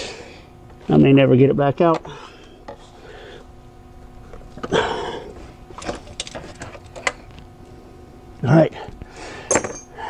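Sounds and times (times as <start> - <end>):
breathy grunt of effort: 4.6 - 5.4.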